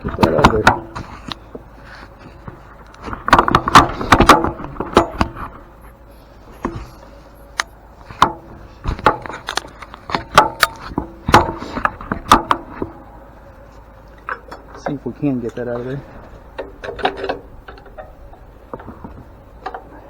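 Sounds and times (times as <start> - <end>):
metal tools knocking and clanking: 0.0 - 1.1, 3.0 - 5.5, 14.2 - 20.0.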